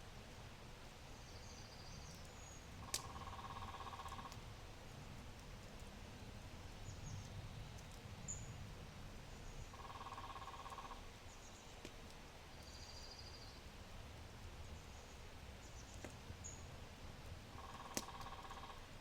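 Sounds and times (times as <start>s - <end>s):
fire crackling: 0.0s - 19.0s
birds trilling and chirping: 9.4s - 11.8s, 17.5s - 18.9s.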